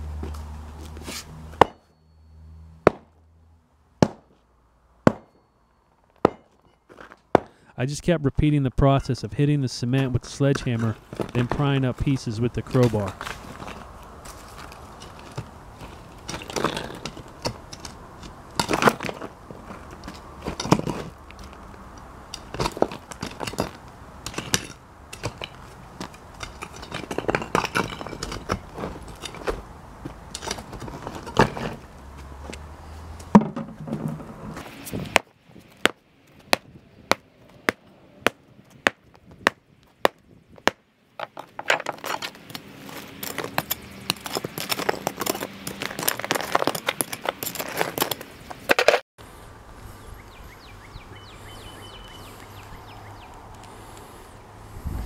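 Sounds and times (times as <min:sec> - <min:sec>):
sledgehammer hitting concrete: 0:01.6 - 0:01.9, 0:02.8 - 0:03.1, 0:04.0 - 0:04.4, 0:05.0 - 0:05.4, 0:06.2 - 0:06.6, 0:07.3 - 0:07.6
crowbar prying: 0:06.2 - 0:06.8, 0:22.4 - 0:29.6
concrete chunks crunching: 0:09.9 - 0:31.9, 0:38.7 - 0:49.0.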